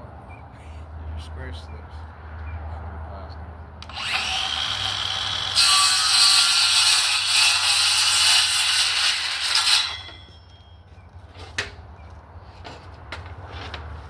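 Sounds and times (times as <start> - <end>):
circular saw cutting wood: 3.8 - 10.7.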